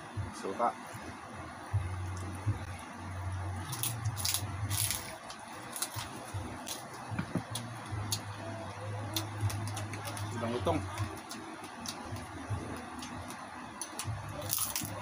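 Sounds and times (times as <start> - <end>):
pork skin crackling when bitten: 3.6 - 8.2, 13.0 - 15.0
wet chewing: 3.6 - 8.3.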